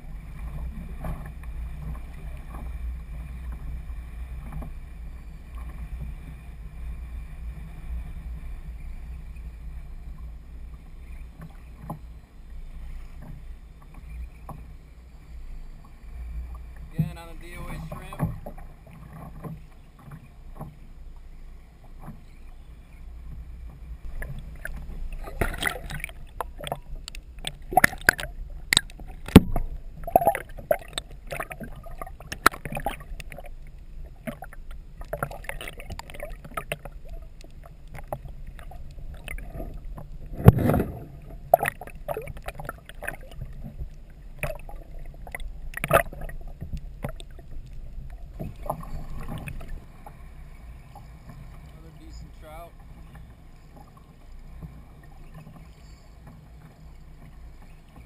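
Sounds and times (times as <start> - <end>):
low rumble of wind: 0.0 - 58.0
water lapping and splashing: 0.0 - 58.0
knocks against kayak hull: 29.3 - 29.7.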